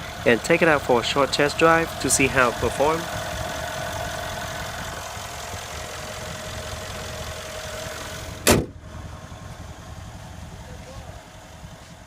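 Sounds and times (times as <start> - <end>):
car engine idling: 0.0 - 12.0
car hood slamming: 8.4 - 8.8.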